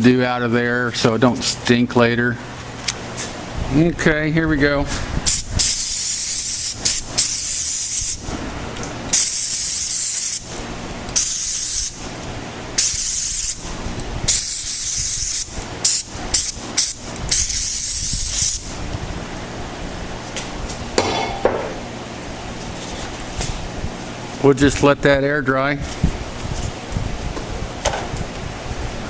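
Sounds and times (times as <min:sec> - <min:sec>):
aerosol can spraying: 0:05.3 - 0:08.2, 0:09.2 - 0:10.5, 0:11.2 - 0:12.0, 0:12.8 - 0:13.6, 0:14.3 - 0:18.6.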